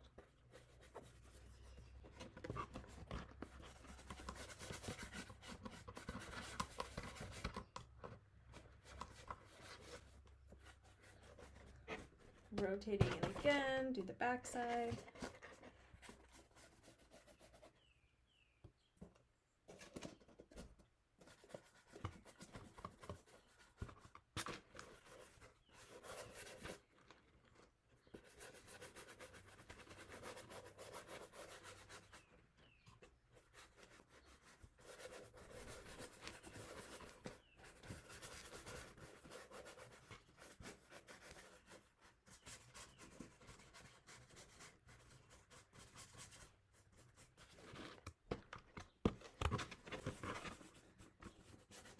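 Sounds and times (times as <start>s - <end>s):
paintbrush strokes on cardboard: 0.1s - 7.7s, 8.5s - 18.5s, 24.8s - 26.9s, 28.0s - 47.7s.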